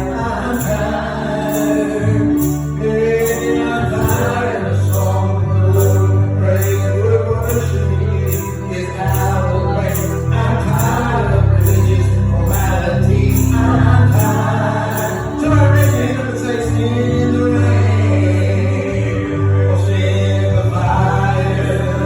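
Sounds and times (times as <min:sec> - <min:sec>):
jingling percussion beat: 0:00.0 - 0:16.7
gospel singers: 0:00.0 - 0:22.0
heavy bass line: 0:00.0 - 0:22.0.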